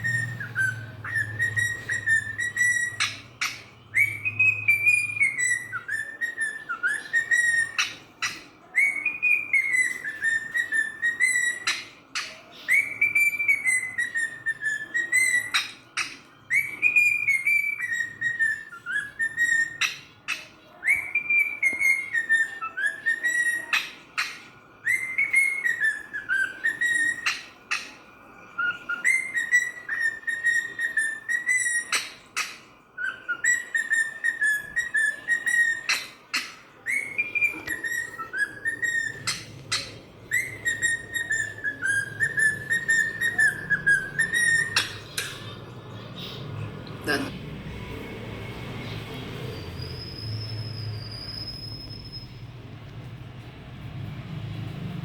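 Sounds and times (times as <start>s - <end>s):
cockatiel whistling a tune: 0.0s - 46.0s, 47.8s - 53.1s.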